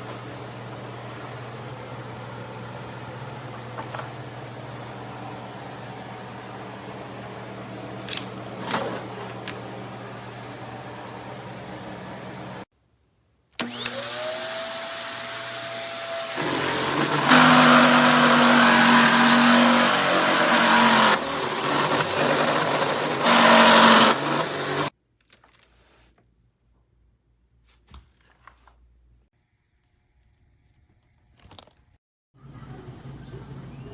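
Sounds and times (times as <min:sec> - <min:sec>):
vacuum cleaner motor running: 0:00.1 - 0:12.6, 0:13.6 - 0:24.9.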